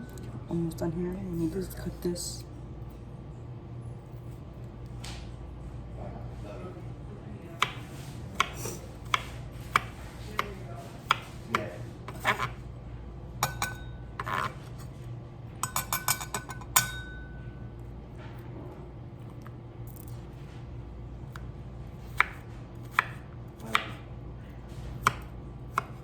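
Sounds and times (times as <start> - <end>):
knife cutting on a board: 7.6 - 12.6, 14.2 - 14.8, 22.1 - 24.0, 24.8 - 26.0.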